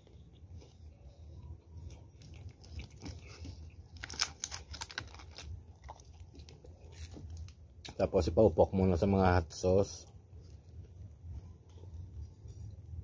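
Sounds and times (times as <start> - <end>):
person chewing pizza: 0.0 - 8.0.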